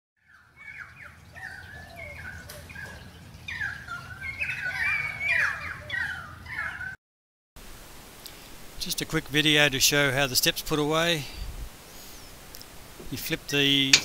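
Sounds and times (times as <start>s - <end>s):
birds chattering calls: 0.3s - 7.0s.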